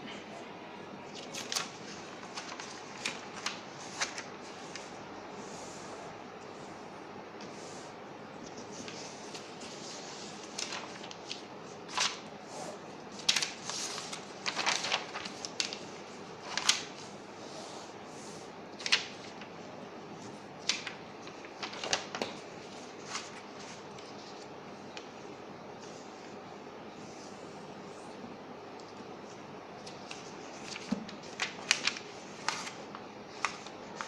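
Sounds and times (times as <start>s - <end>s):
paper being folded and creased: 1.1s - 5.0s, 8.4s - 17.0s, 20.2s - 25.2s, 29.2s - 34.0s.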